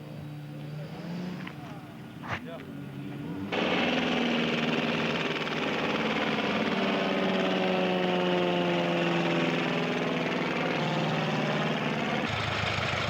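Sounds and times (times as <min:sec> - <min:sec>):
propeller aircraft engine in flight: 0:03.0 - 0:13.0.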